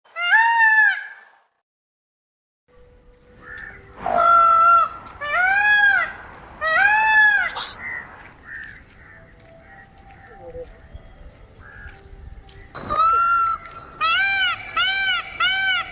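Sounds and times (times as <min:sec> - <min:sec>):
peafowl wailing calls: 0:03.4 - 0:10.6, 0:12.7 - 0:15.9
faint calls of other birds: 0:03.4 - 0:15.9.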